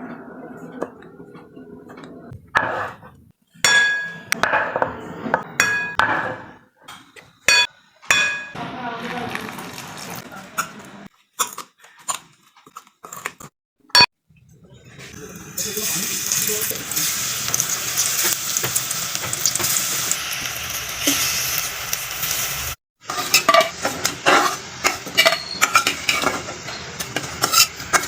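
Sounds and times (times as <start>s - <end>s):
metal kitchenware clinking: 3.6s - 8.6s, 23.1s - 28.0s.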